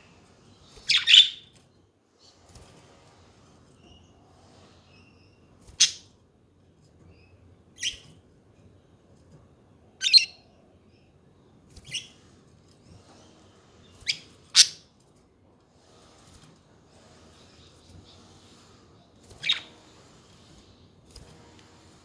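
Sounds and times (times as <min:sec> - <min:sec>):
soft budgerigar twitters: 0:00.7 - 0:01.5, 0:07.2 - 0:08.1, 0:10.0 - 0:10.4, 0:11.8 - 0:12.2, 0:13.9 - 0:14.8, 0:19.3 - 0:19.8
budgerigar chirps: 0:00.9 - 0:01.4, 0:10.0 - 0:10.4, 0:14.1 - 0:14.8.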